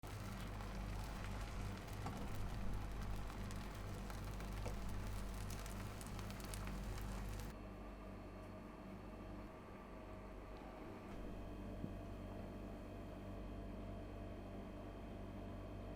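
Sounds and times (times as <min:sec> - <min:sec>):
oil sizzling in a hot pan: 0:00.0 - 0:07.5
low steady hum: 0:00.0 - 0:10.5.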